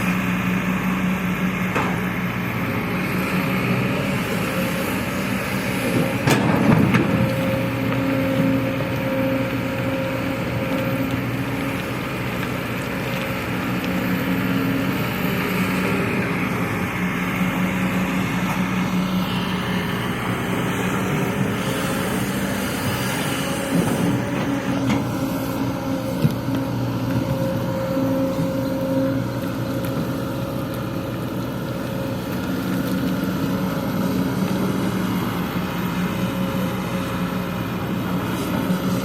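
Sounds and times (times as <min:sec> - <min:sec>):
heavy diesel engine running: 0:00.0 - 0:39.0.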